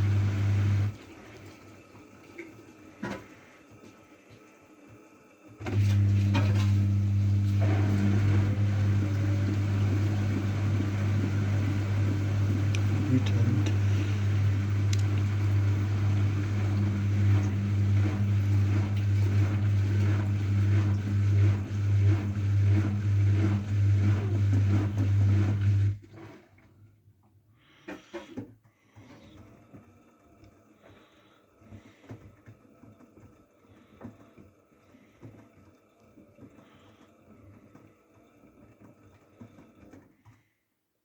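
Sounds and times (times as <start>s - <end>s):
washing machine drain pump: 0.0s - 26.9s, 27.6s - 40.5s.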